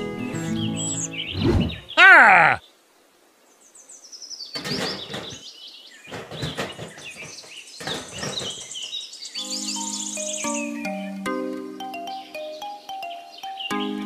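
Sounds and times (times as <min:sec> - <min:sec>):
music with sustained notes: 0:00.0 - 0:01.3, 0:09.4 - 0:14.0
birds chirping and twittering: 0:00.2 - 0:02.8, 0:03.5 - 0:14.0.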